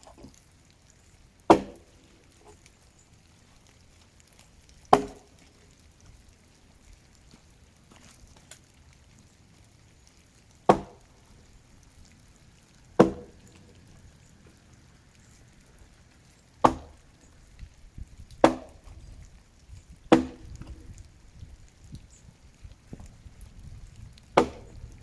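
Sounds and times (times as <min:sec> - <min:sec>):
axe chopping wood: 0:01.5 - 0:01.8, 0:04.9 - 0:05.3, 0:10.7 - 0:11.0, 0:13.0 - 0:13.4, 0:16.6 - 0:17.0, 0:18.4 - 0:18.8, 0:20.1 - 0:20.8, 0:24.3 - 0:24.8.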